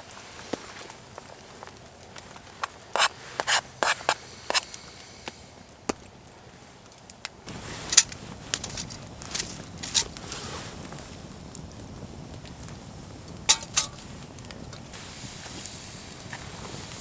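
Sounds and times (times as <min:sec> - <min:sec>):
knife cutting on cutting board: 0:03.0 - 0:04.6.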